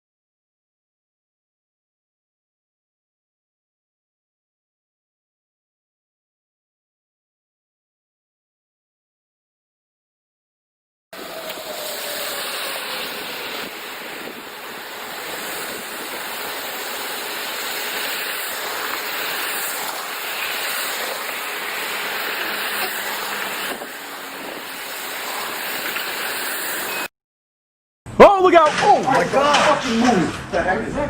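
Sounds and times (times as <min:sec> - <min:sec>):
wind buffeting microphone: 0:11.2 - 0:19.4, 0:23.1 - 0:25.9
rushing storm wind: 0:11.2 - 0:27.1.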